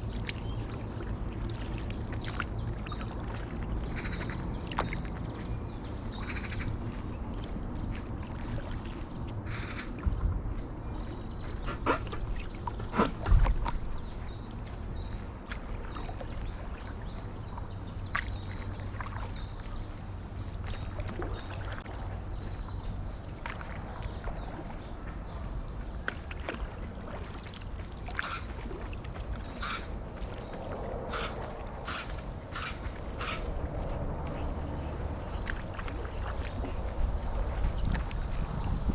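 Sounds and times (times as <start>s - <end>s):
birds singing: 0.0s - 33.5s
low wind rumble: 0.0s - 38.9s
paddle dipping and dripping: 0.0s - 38.9s
sharp knocks or splashes: 11.7s - 13.9s.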